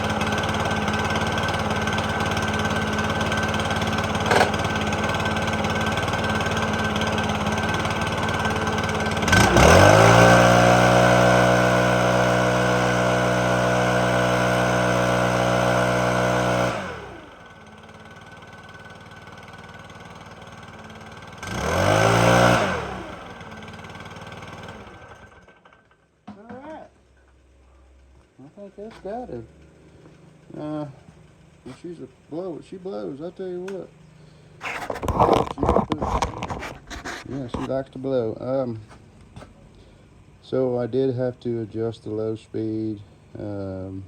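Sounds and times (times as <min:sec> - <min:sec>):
leaf blower engine revving: 0:00.0 - 0:25.8, 0:28.8 - 0:37.8.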